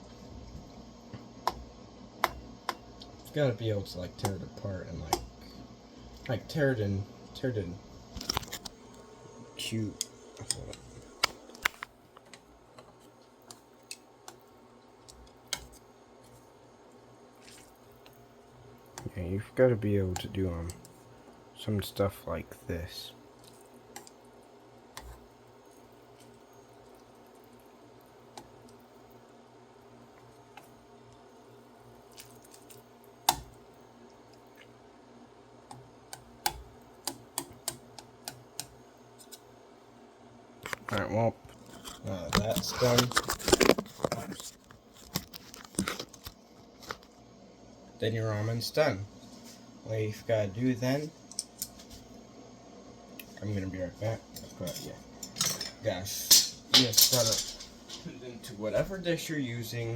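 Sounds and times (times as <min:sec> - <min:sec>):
utensil clicking against cooking pot: 0:35.7 - 0:38.8.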